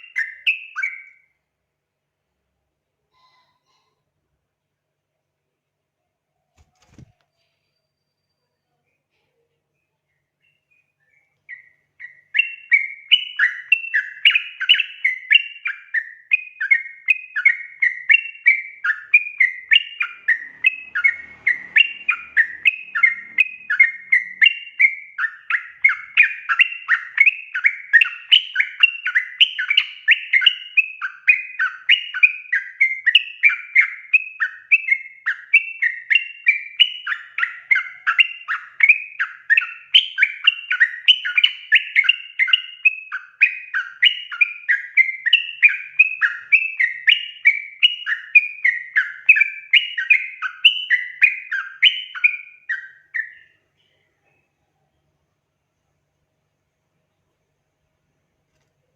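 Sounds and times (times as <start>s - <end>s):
bird song bubbling notes: 10.2s - 34.7s.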